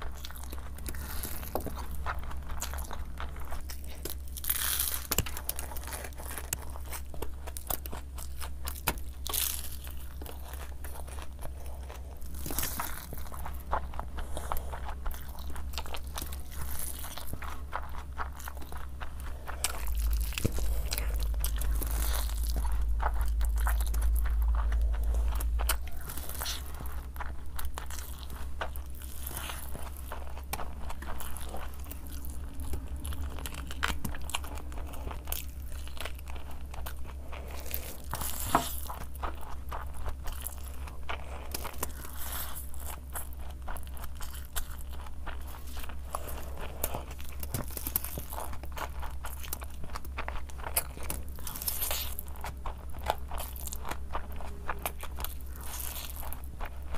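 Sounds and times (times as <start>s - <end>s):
crunchy crackles of food: 0.0s - 56.9s
person chewing food wetly: 0.0s - 56.9s
low hum: 9.0s - 42.1s.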